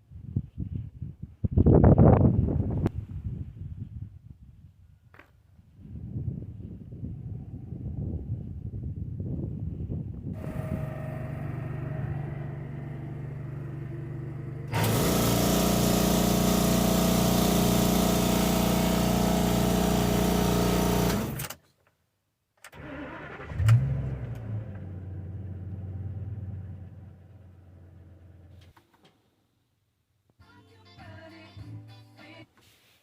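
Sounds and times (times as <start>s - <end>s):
engine running with low pulse: 10.3s - 21.5s, 23.4s - 28.7s
engine starting and idling: 10.4s - 21.6s, 22.7s - 28.7s.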